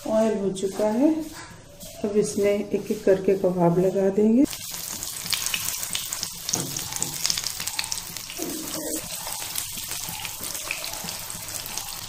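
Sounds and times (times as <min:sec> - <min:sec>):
patties sizzling in hot oil: 0:04.4 - 0:12.0.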